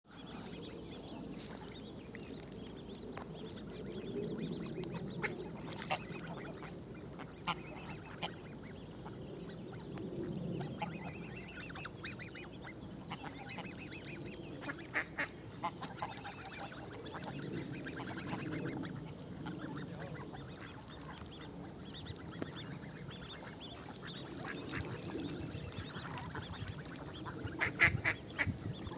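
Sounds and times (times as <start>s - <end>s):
ducks quacking: 5.0s - 9.1s, 10.6s - 28.9s.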